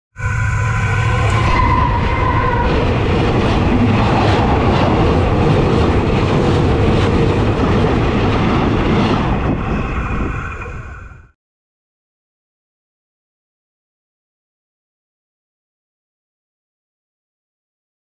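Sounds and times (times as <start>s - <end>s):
train wheels rumbling over track: 0.2s - 11.4s.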